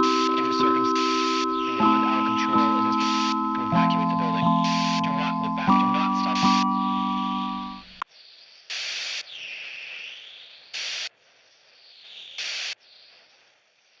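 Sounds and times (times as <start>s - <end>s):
electric keyboard chord: 0.0s - 8.0s
static-like hiss bursts: 8.4s - 14.0s.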